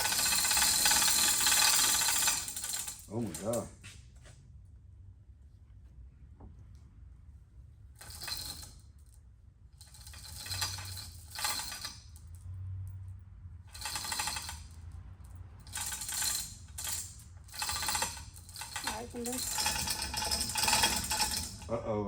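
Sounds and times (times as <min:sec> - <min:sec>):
chain hoist clicking and rattling: 0:00.0 - 0:03.7, 0:08.0 - 0:09.1, 0:09.8 - 0:13.0, 0:13.7 - 0:21.7.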